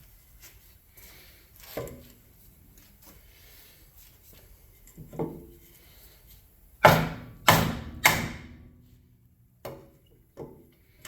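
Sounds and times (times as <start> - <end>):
hammer striking metal wheel rim: 6.8 - 8.7.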